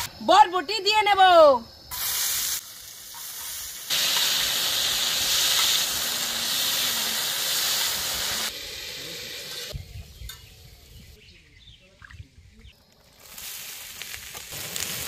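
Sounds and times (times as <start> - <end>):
beans sizzling in hot oil: 1.9 - 9.8, 13.2 - 15.0.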